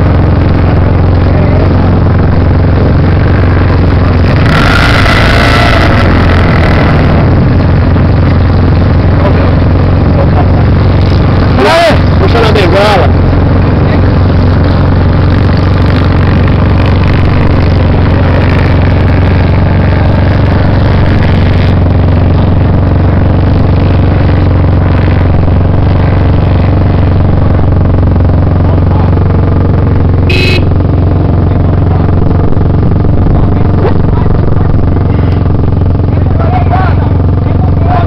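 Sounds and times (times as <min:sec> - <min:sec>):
motorcycle engine running: 0:00.0 - 0:38.0
short high-pitched beep: 0:30.3 - 0:30.7.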